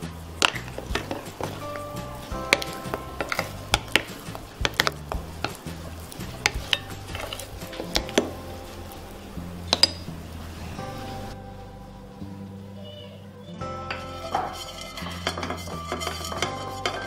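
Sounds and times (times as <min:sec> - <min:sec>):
background music: 0:00.0 - 0:17.0
spatula stirring batter in bowl: 0:00.3 - 0:10.0, 0:14.0 - 0:17.0.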